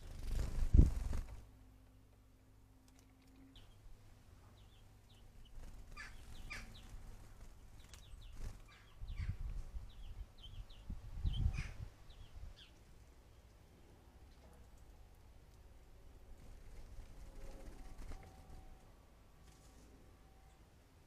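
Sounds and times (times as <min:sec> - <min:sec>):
small birds chirping: 0:02.8 - 0:13.6.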